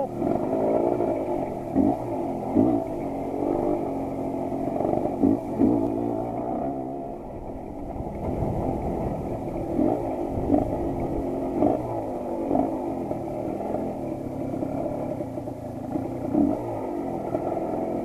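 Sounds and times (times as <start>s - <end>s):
motorcycle engine with throttle blips: 0.0s - 18.0s.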